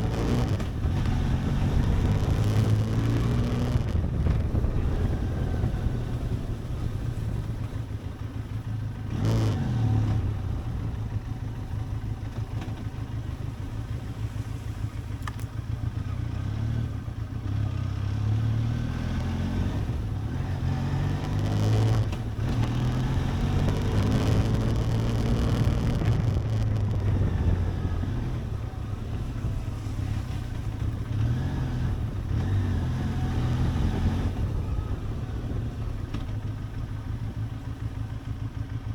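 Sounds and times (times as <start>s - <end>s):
wind noise: 0.0s - 8.2s, 21.0s - 37.6s
motorcycle engine running: 0.0s - 38.9s.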